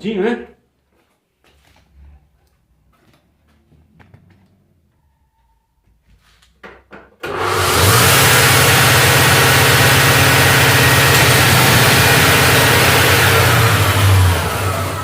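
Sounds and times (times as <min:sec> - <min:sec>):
alternator running with hum and hiss: 0:07.4 - 0:15.0.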